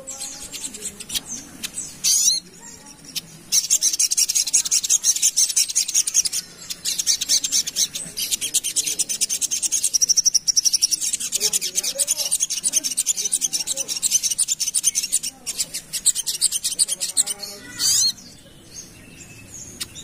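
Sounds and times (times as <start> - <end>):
bird rattling chatter: 0.0 - 18.0.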